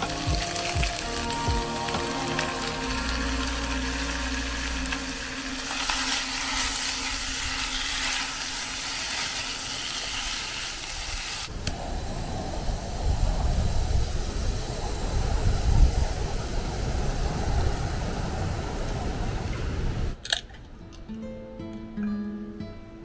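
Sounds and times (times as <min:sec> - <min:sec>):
meat sizzling in a wok: 0:00.0 - 0:11.5
gas torch flame rushing: 0:00.0 - 0:20.2.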